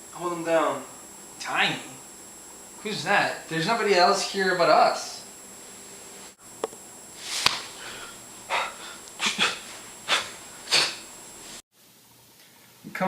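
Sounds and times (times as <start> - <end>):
breathy puffs: 7.4 - 11.0.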